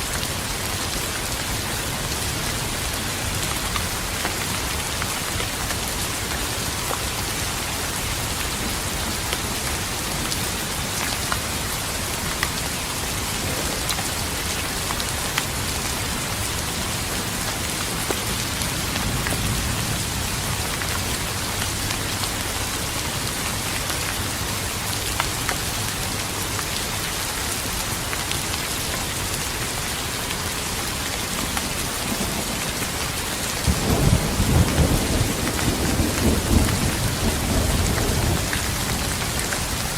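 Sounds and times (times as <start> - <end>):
steady rain: 0.0 - 39.9
thunder rumble: 33.7 - 39.8.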